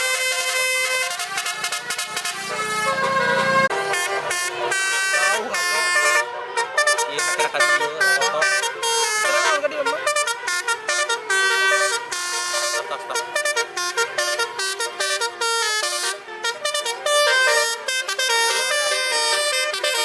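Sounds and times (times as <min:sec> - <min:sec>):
melodic truck horn: 0:00.0 - 0:20.0.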